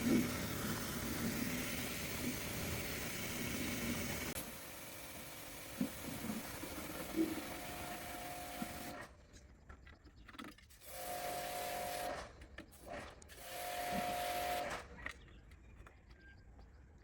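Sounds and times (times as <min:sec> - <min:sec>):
small motor-driven tool running: 0:00.0 - 0:09.1.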